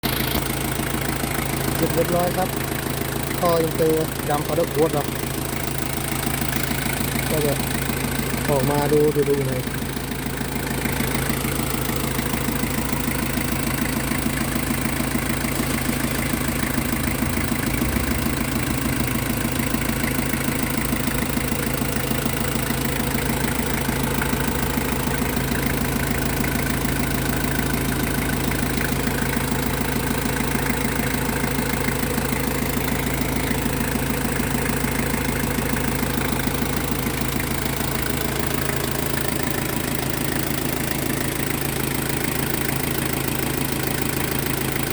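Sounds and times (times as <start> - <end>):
diesel engine idling: 0.0 - 44.9.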